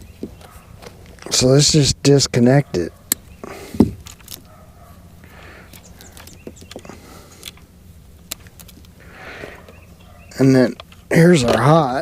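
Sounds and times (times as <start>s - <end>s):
low steady hum: 0.0s - 12.0s
connector clicks and handling: 3.8s - 4.5s, 7.4s - 9.0s.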